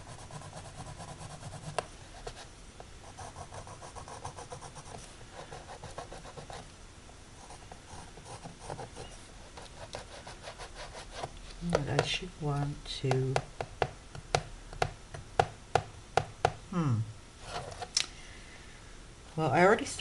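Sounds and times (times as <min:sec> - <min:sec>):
charcoal pencil scratching on canvas: 0:00.1 - 0:02.4, 0:03.1 - 0:06.6, 0:07.4 - 0:11.3.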